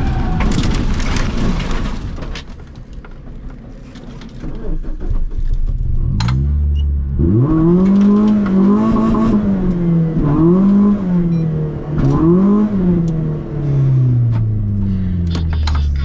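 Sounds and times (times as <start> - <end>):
rally car engine revving: 4.5 - 16.0.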